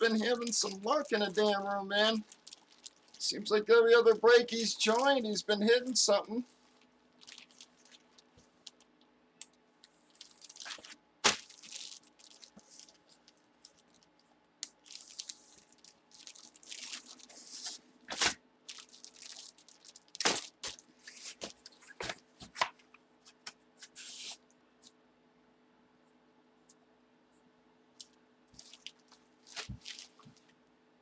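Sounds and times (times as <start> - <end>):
cards rustling and sliding: 20.2 - 24.4.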